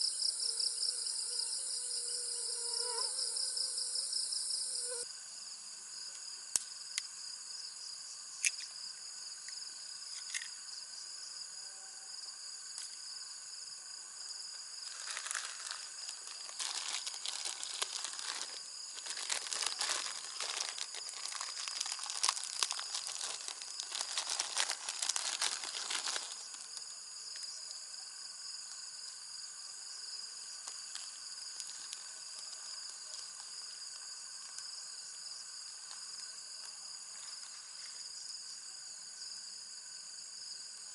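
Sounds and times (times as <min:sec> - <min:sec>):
insects chirring: 0:00.0 - 0:40.9
crinkling and crackling: 0:14.8 - 0:26.8, 0:30.6 - 0:34.7.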